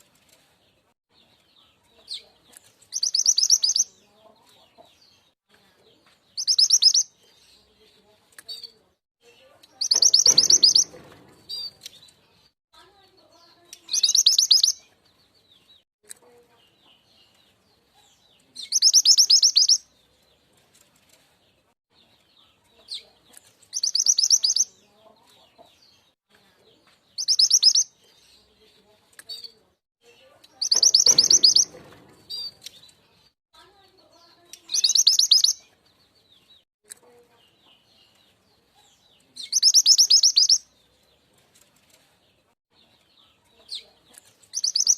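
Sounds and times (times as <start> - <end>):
bird chattering trill: 3.0 - 3.8, 6.4 - 7.1, 9.8 - 11.7, 13.9 - 14.8, 18.8 - 19.8, 23.8 - 24.7, 27.2 - 27.9, 30.6 - 32.5, 34.6 - 35.6, 39.6 - 40.6, 44.6 - 44.9
faint small chirps: 43.5 - 44.9.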